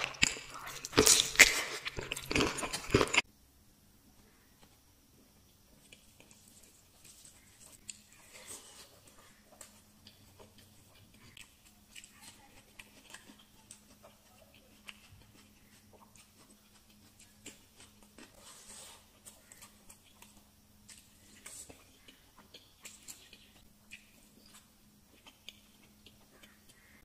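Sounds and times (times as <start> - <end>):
faint low hum: 0.0 - 27.0.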